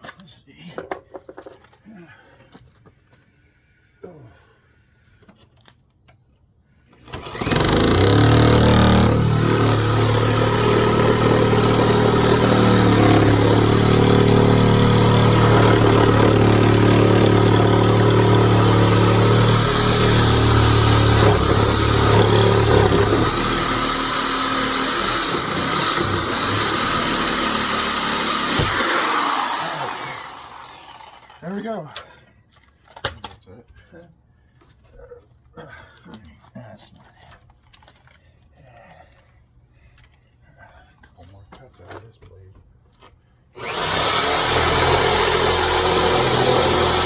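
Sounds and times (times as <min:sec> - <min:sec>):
electric power saw cutting wood: 0:07.1 - 0:31.6, 0:43.6 - 0:47.0.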